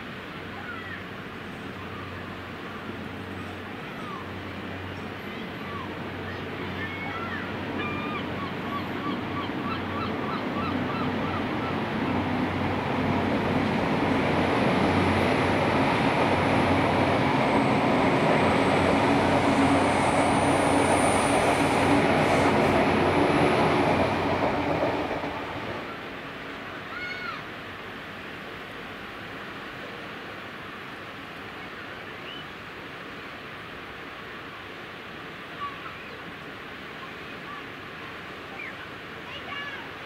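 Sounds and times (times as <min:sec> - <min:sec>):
diesel train passing: 0:01.1 - 0:26.9.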